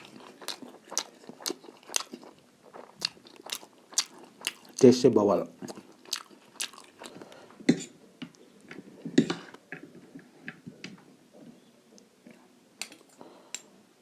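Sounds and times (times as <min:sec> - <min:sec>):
chewing with wet mouth clicks: 0:00.0 - 0:05.0, 0:05.6 - 0:07.4.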